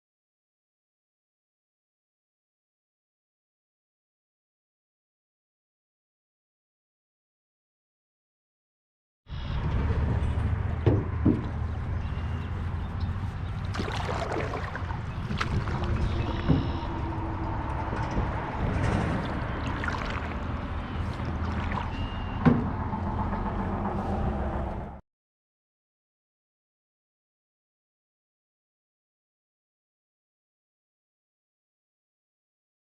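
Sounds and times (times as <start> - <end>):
low wind rumble: 9.4 - 25.0
sharp knocks on canoe: 10.8 - 11.6, 13.7 - 16.9, 21.4 - 22.8
water rushing: 13.4 - 23.1.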